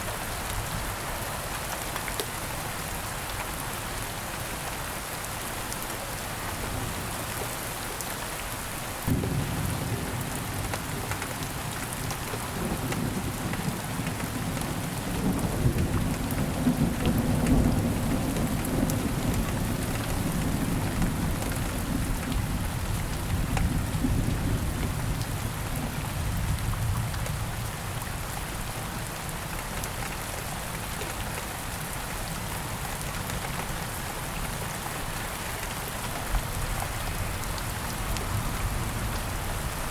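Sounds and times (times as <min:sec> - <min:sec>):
steady rain falling: 0:00.0 - 0:39.9
low thunder rumble: 0:09.1 - 0:10.6.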